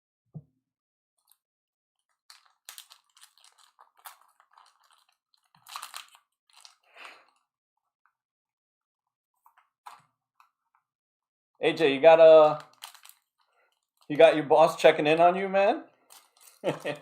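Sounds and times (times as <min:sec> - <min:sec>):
card wrappers crinkling: 0:02.1 - 0:07.4, 0:12.4 - 0:15.4, 0:16.0 - 0:17.0.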